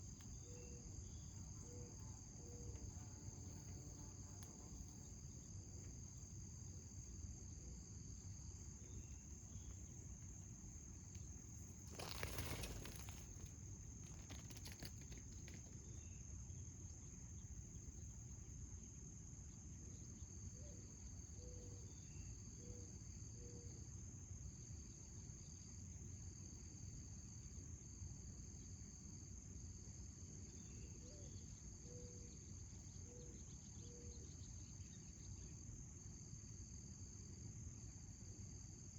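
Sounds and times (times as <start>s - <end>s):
insects trilling: 0.0s - 18.6s
broken insect trill: 8.2s - 16.2s.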